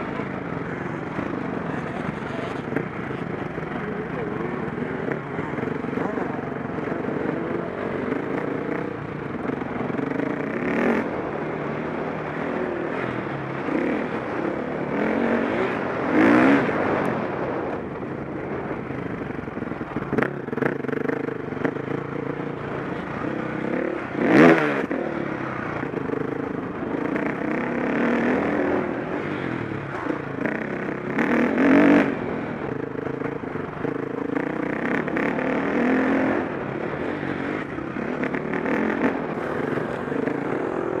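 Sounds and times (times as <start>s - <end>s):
motocross bike engine revving: 19.8s - 41.0s.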